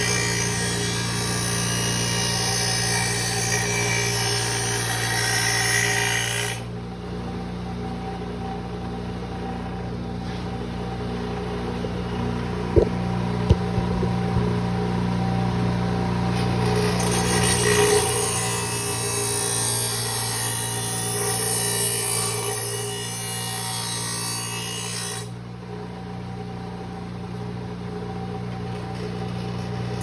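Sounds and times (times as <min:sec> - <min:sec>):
bench grinder motor humming: 0:00.0 - 0:06.6, 0:09.3 - 0:22.9
sharp knocks: 0:12.7 - 0:14.6.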